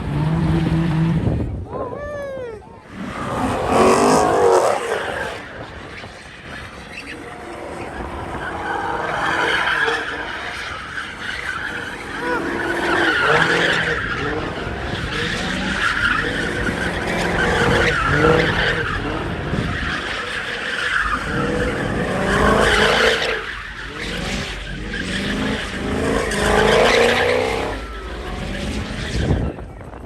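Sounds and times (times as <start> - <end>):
tires screeching on pavement: 0.0 - 30.0
car engine revving hard: 2.9 - 29.7.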